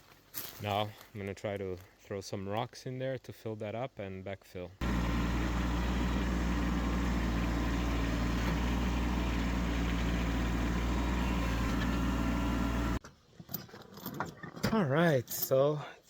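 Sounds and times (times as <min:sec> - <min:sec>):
tractor engine running: 0:04.8 - 0:13.0.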